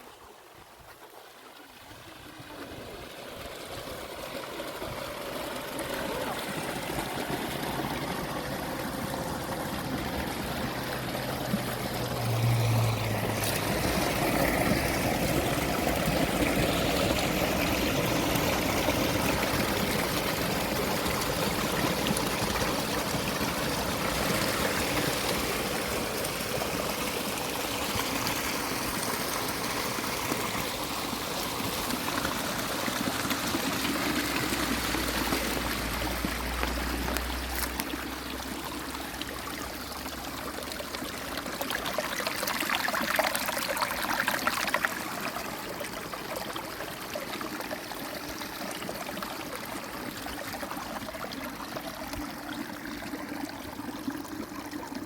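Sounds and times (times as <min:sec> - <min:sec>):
spring water running: 0:00.9 - 0:55.0.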